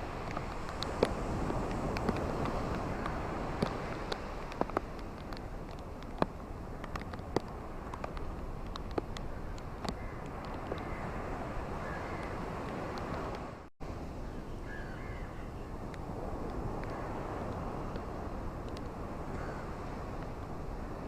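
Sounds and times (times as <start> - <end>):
ocean waves washing on a beach: 0.0 - 21.0
faint bird calls: 11.8 - 12.4, 14.2 - 15.8.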